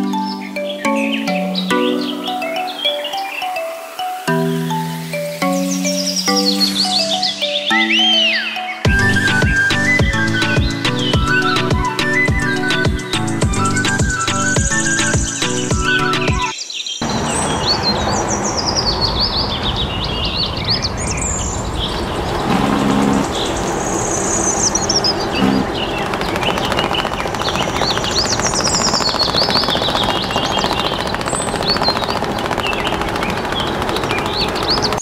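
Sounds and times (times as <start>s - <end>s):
small birds chirping: 0.0s - 35.0s
steady background noise: 17.0s - 35.0s.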